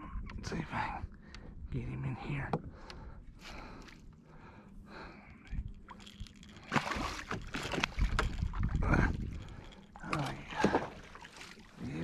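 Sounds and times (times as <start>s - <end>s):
water sloshing and splashing: 5.4s - 12.0s
fish thumping in kayak: 5.8s - 11.7s.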